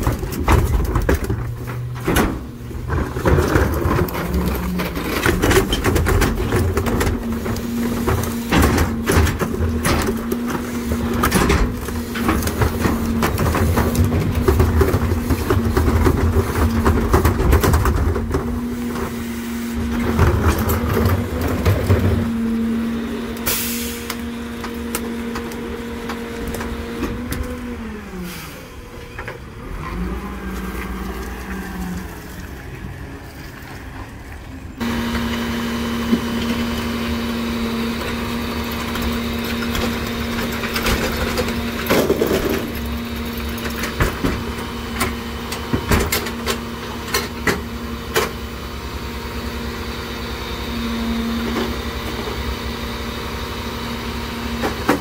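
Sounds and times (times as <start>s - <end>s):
trash bangs and clatter: 0.0s - 27.8s, 34.8s - 48.5s, 54.5s - 55.0s
garbage truck humming: 0.0s - 55.0s.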